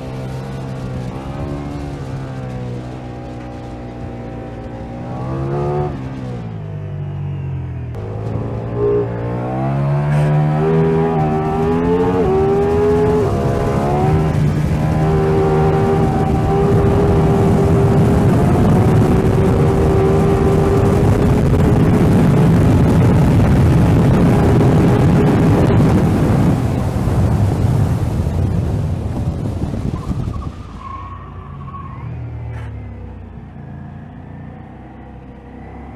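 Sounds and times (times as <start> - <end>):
motorcycle engine accelerating hard: 0.0 - 30.6, 32.2 - 35.9
rushing wind noise: 8.0 - 32.4.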